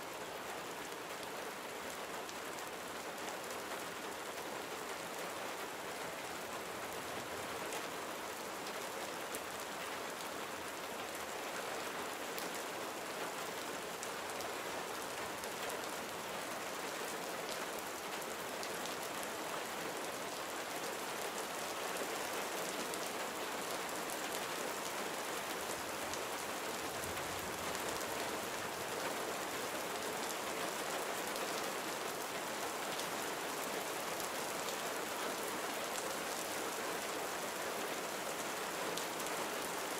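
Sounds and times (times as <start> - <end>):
gentle rain pattering: 0.0 - 39.9.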